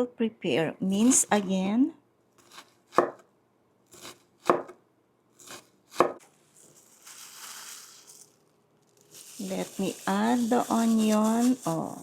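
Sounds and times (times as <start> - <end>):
knife chopping on cutting board: 2.4 - 3.2, 3.9 - 4.8, 5.4 - 6.2
soft rustle: 6.3 - 12.0.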